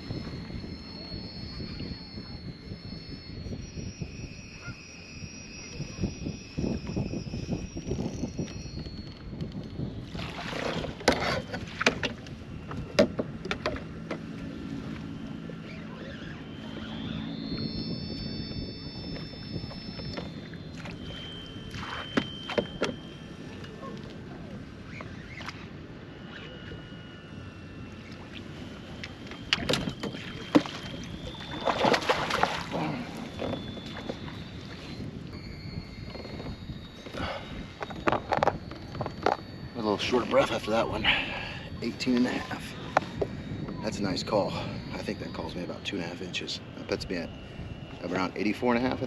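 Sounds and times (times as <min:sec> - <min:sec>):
low motor hum: 0:00.0 - 0:49.0
water: 0:00.0 - 0:49.0
wind noise: 0:00.0 - 0:49.0
water splashing: 0:29.6 - 0:34.2.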